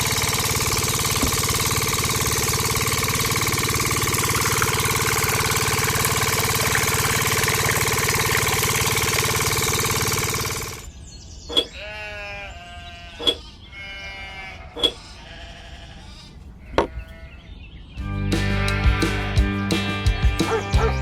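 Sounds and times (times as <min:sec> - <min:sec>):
motor running: 0:00.0 - 0:10.9
wavering bleating calls: 0:11.6 - 0:17.4, 0:18.4 - 0:19.1.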